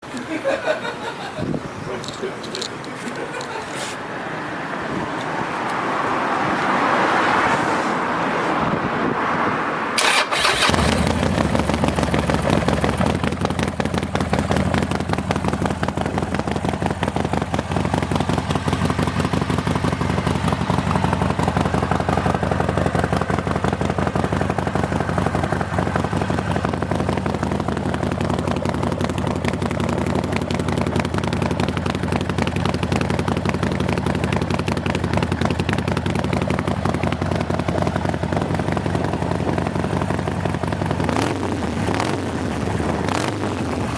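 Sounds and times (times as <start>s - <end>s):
motorcycle engine idling: 10.0s - 43.9s.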